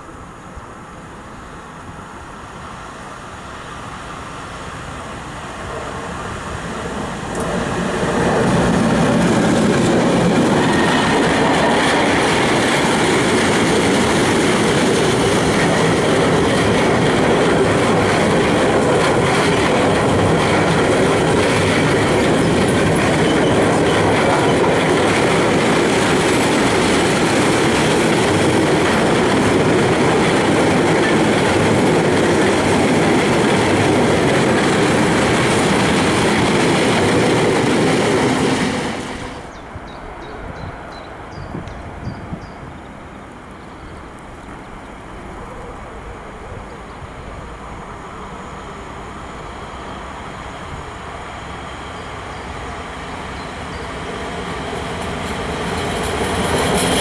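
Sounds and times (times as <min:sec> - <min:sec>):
freight train passing: 0:00.0 - 0:57.0
wheels clattering on rails: 0:05.7 - 0:39.6, 0:51.5 - 0:57.0.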